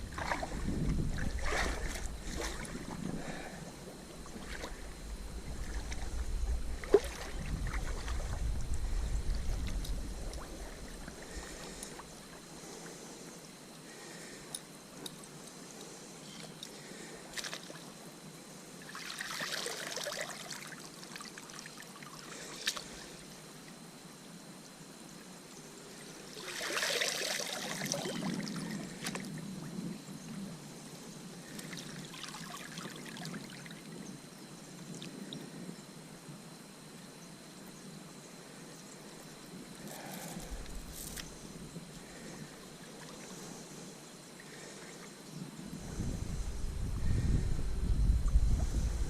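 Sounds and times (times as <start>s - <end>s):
water splashing and trickling: 0.0s - 3.5s, 4.2s - 8.7s, 18.8s - 23.1s, 26.3s - 29.3s, 31.5s - 33.9s.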